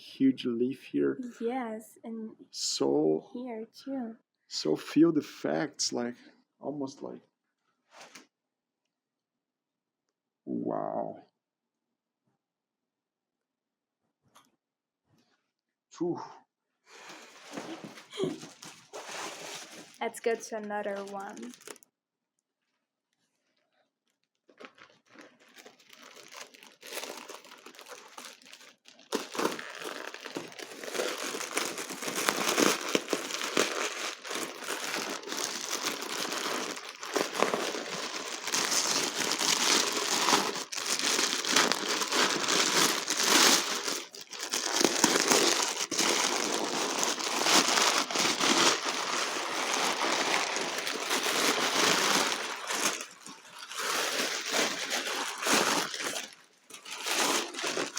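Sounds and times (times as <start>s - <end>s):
packing paper crinkling: 17.0s - 21.8s, 24.2s - 57.9s.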